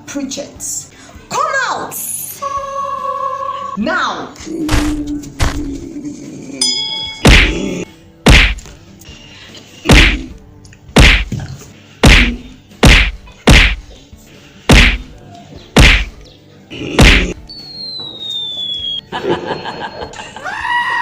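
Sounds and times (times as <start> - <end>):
loud whacking blows: 8.3 - 8.6, 9.9 - 10.2, 11.0 - 11.3, 12.0 - 13.8, 14.7 - 15.1, 15.8 - 16.2, 17.0 - 17.4.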